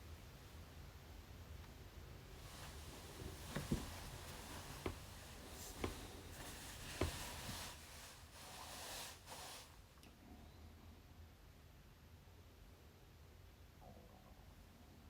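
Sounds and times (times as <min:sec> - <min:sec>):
soft rubbing hiss: 0:02.3 - 0:09.9
light knocks: 0:03.2 - 0:07.6.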